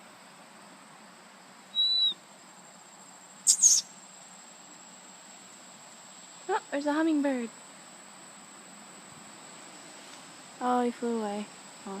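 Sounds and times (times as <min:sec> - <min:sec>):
small bird chirping: 0:01.7 - 0:02.2, 0:03.4 - 0:04.0
thin high-pitched whine: 0:03.4 - 0:05.0.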